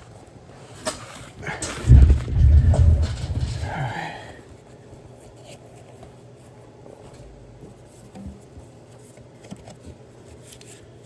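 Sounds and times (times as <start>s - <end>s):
steady low hum: 1.4s - 4.4s.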